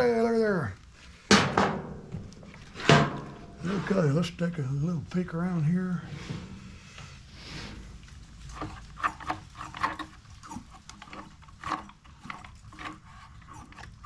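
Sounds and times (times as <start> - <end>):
plastic parts clicking and rubbing: 8.0 - 14.0.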